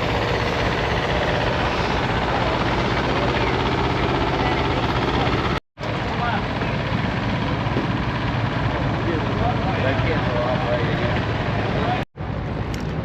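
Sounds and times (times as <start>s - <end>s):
low engine drone: 0.0s - 13.0s
outdoor noise: 0.0s - 13.0s.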